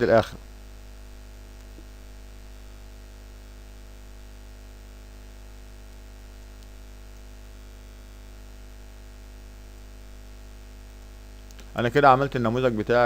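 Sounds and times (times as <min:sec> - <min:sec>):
background hiss: 0:00.0 - 0:13.0
electrical hum: 0:00.0 - 0:13.0
faint click: 0:06.5 - 0:07.3.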